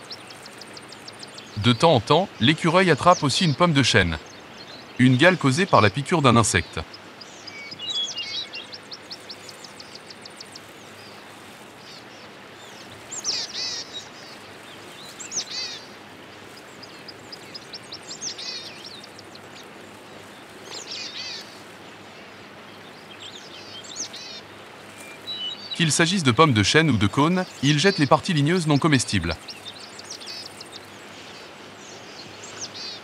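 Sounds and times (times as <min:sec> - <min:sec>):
small birds chirping: 0:00.0 - 0:33.0
steady background hiss: 0:00.0 - 0:33.0.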